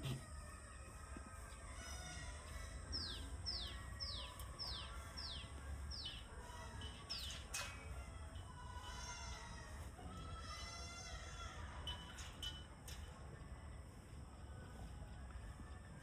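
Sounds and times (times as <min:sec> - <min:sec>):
bird singing whistled notes: 0:02.9 - 0:06.3.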